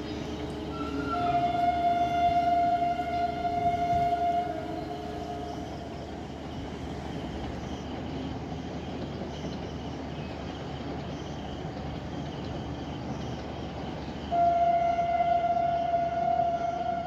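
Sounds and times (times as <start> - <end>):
train horn: 0.0 - 6.5, 14.3 - 17.0
insects chirring: 0.0 - 14.4
distant train rumbling: 0.0 - 17.0.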